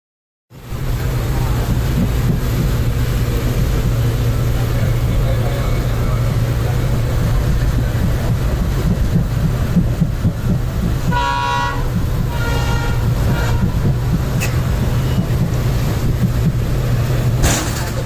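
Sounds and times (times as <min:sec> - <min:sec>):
train rumbling: 0:00.5 - 0:18.0
train horn: 0:11.0 - 0:14.0.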